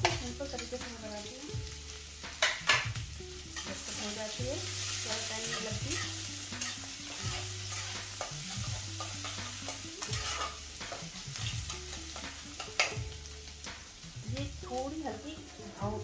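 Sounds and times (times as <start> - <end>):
onions sizzling in oil: 0.0 - 16.0
spatula scraping pan: 3.5 - 13.0.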